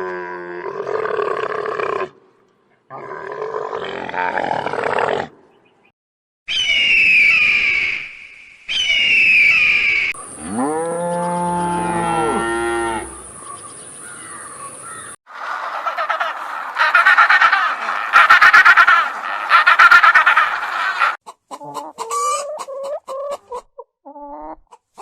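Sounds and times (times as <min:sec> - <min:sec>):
shrill animal calls: 0:08.7 - 0:21.2
long deep animal call: 0:10.4 - 0:13.3.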